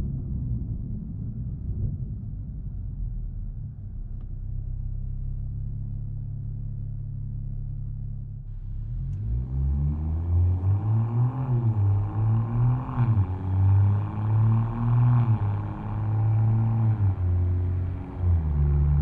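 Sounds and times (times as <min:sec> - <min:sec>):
car engine exhaust revving: 0:08.6 - 0:19.0.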